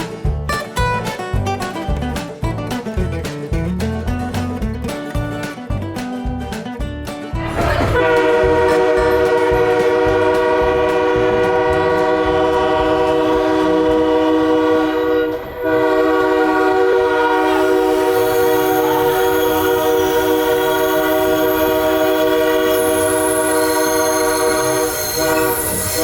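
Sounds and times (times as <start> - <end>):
locomotive air horn chord: 7.6 - 26.0.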